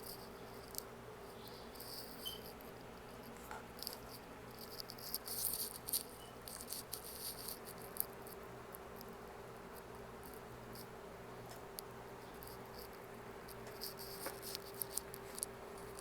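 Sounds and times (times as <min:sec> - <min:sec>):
faint steady hum: 0:00.0 - 0:16.0
chewing clicks and crackles: 0:11.5 - 0:16.0.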